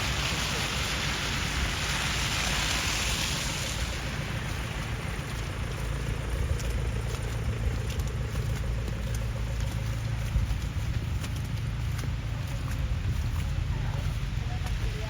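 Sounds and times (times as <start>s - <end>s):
low engine rumble: 0.0s - 15.0s
tyre hiss on wet street: 0.0s - 15.0s.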